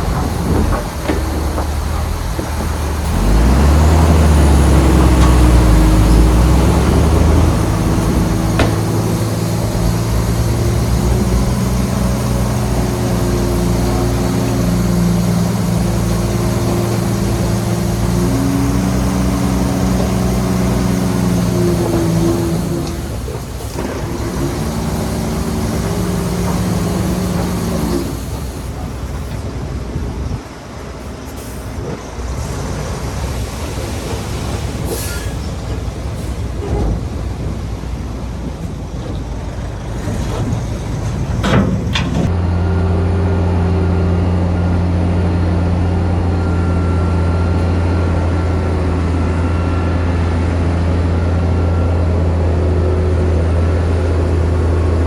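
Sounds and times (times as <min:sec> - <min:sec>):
low engine drone: 0:00.0 - 0:23.9, 0:40.0 - 0:55.0
diesel machinery running: 0:00.0 - 0:55.0.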